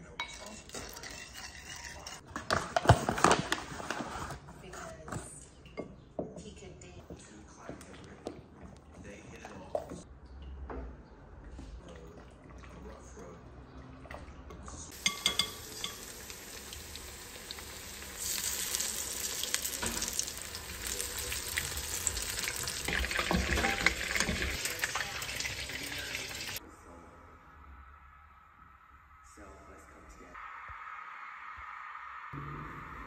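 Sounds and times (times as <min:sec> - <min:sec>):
chicken frying in hot oil: 0:14.9 - 0:26.6.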